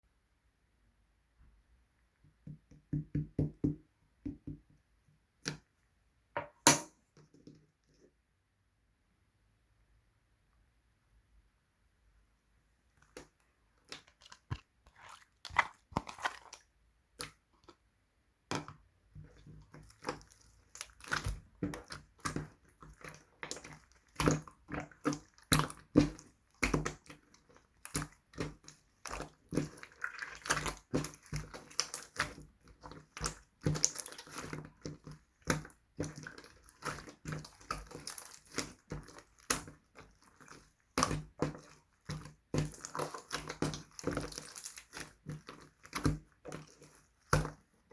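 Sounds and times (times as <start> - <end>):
slime clicking and squelching: 13.0 - 47.9.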